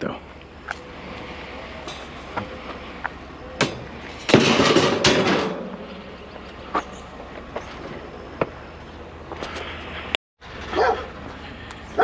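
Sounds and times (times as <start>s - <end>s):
scrap metal clanking and clattering: 3.6s - 6.3s.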